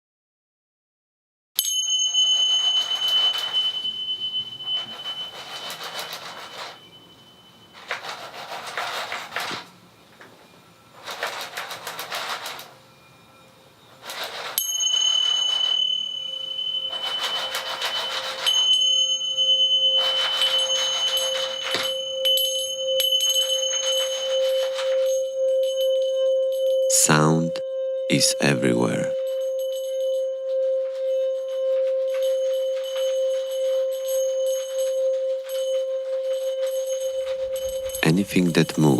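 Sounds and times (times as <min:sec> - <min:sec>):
high steady ringing tone: 0:01.6 - 0:38.9
clattering rattling noise: 0:02.4 - 0:12.9, 0:13.9 - 0:25.3, 0:30.6 - 0:38.9.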